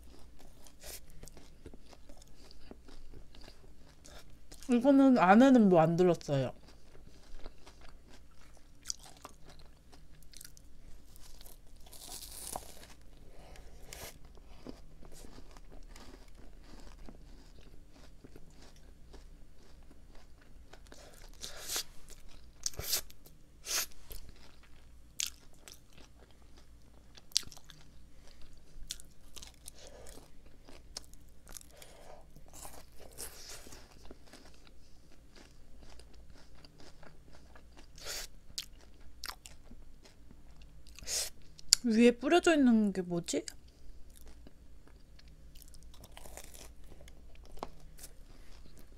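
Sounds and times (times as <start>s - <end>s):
wet chewing: 6.5s - 23.1s
crunchy biting: 11.2s - 23.1s, 45.6s - 48.9s.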